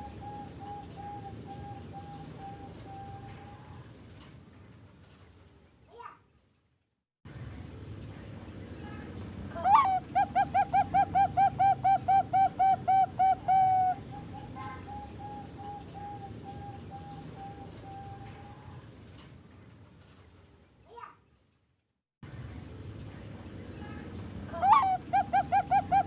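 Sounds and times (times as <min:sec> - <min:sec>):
dove cooing: 0:00.0 - 0:03.8, 0:09.6 - 0:18.8, 0:24.5 - 0:26.0
low steady hum: 0:00.0 - 0:05.8, 0:07.3 - 0:20.8, 0:22.2 - 0:26.0.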